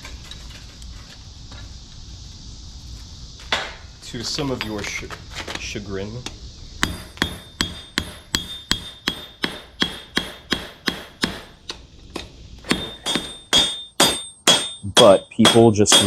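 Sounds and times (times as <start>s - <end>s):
hammer striking metal on anvil: 6.8s - 11.6s, 12.7s - 16.0s.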